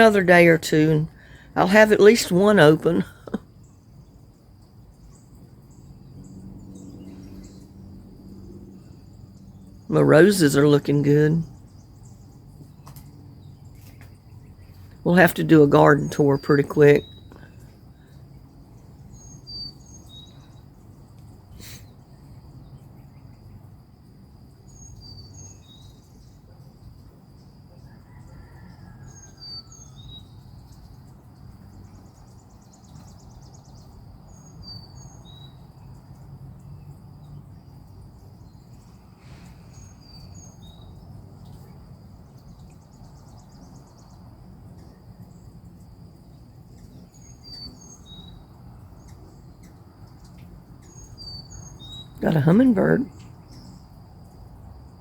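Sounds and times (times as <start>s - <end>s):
insect drone: 0.0s - 55.0s
low background hum: 0.0s - 55.0s
songbird chirping: 0.0s - 55.0s.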